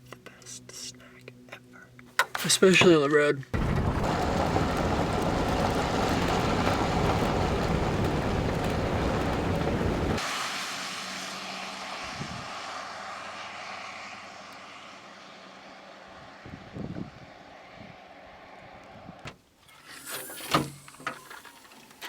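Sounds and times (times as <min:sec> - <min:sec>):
car road and wind rush: 0:03.6 - 0:19.6.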